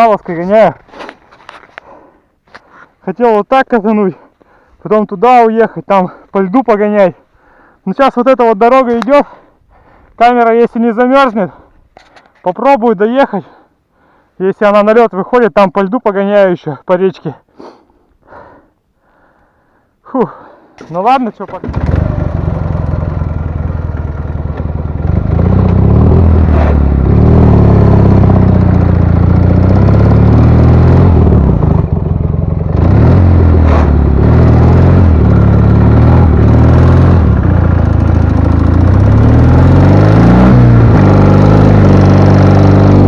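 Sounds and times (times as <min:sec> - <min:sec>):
motorcycle engine under hard throttle: 0:21.4 - 0:43.0.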